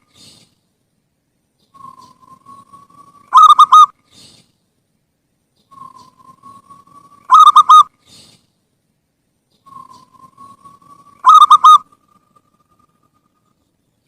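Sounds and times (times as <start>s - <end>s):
dove cooing: 1.7s - 3.9s, 5.7s - 7.9s, 9.6s - 12.2s.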